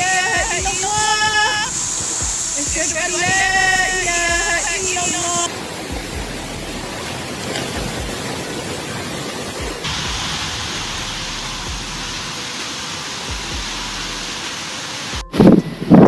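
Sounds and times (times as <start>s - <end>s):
heavy rain: 0.0s - 16.0s
windstorm rushing: 0.0s - 16.0s.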